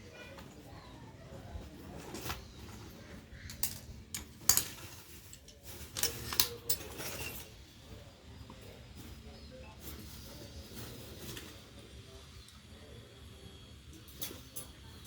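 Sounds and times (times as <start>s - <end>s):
metal tools clicking and clattering: 3.5s - 7.6s, 13.9s - 14.9s.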